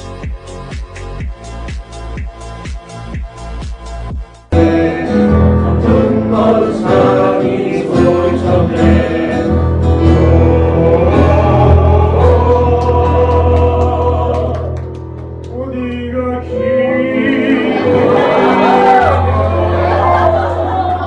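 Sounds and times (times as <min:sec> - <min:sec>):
men's choir singing: 0:04.5 - 0:14.8, 0:16.5 - 0:20.7.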